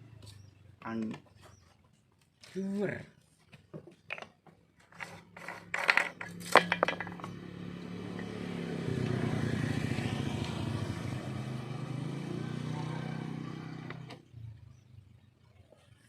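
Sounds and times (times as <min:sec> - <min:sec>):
metal clicks and clatter: 0:04.0 - 0:07.4
small two-stroke engine running: 0:05.0 - 0:14.2.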